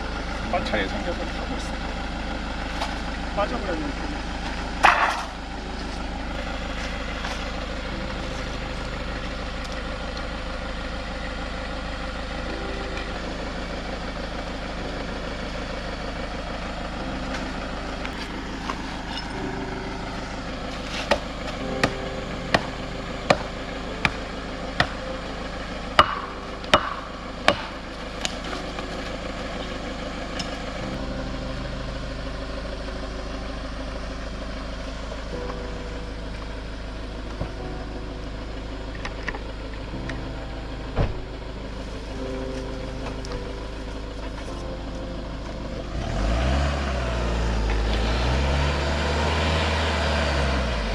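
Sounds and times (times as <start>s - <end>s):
van engine running: 0.0s - 50.9s
sharp knocks: 26.0s - 27.8s.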